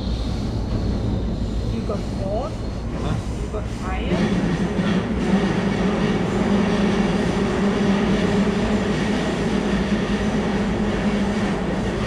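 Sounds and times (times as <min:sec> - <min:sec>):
low hum: 0:00.0 - 0:04.8
train rumble inside carriage: 0:00.0 - 0:12.0.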